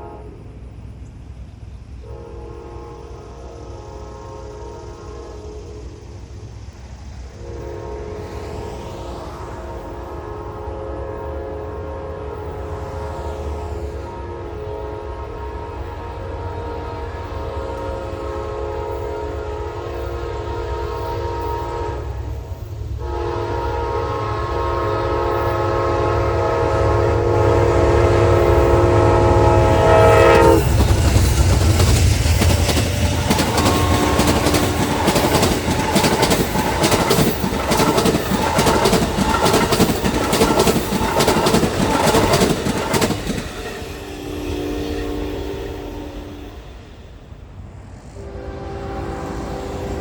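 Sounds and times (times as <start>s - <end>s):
train horn blasts: 0.0s - 0.6s, 2.0s - 6.1s, 7.3s - 47.2s, 48.0s - 50.0s
train cars clacking on rails: 30.4s - 45.3s.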